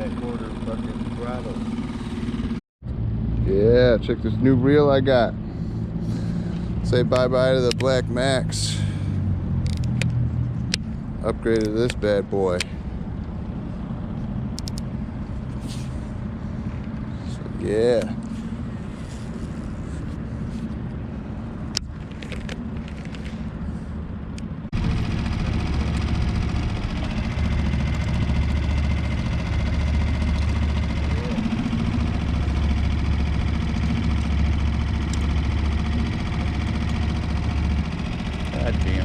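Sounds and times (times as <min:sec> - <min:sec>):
outboard motor running: 0:00.0 - 0:02.6, 0:04.0 - 0:09.8, 0:10.5 - 0:24.1, 0:24.7 - 0:39.0
wind: 0:00.0 - 0:39.0.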